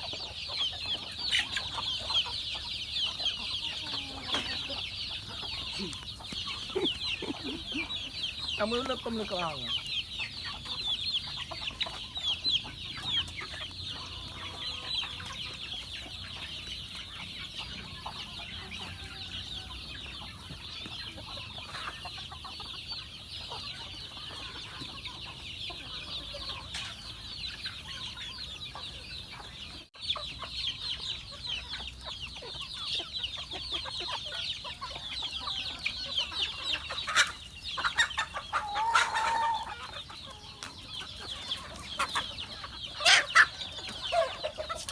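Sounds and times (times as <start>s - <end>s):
chickens clucking: 0.0s - 44.9s
low chicken calls: 35.3s - 40.6s.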